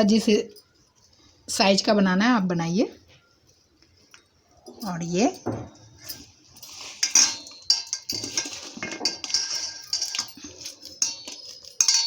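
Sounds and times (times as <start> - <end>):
metal kitchenware clinking: 4.6 - 12.0.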